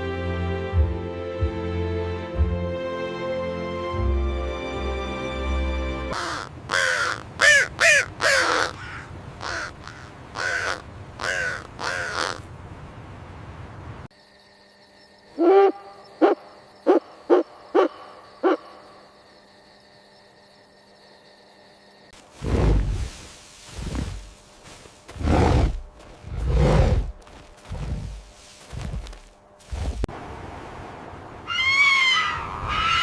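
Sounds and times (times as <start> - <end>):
lower-pitched animal call: 31.5 - 33.0.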